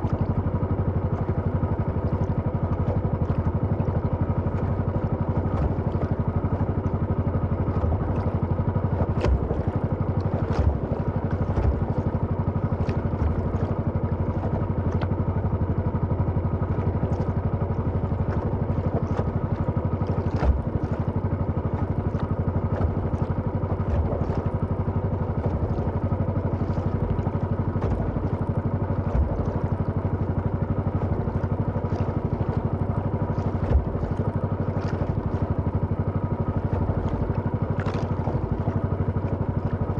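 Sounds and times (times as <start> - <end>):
small engine running: 16.3 - 26.0, 26.6 - 35.5.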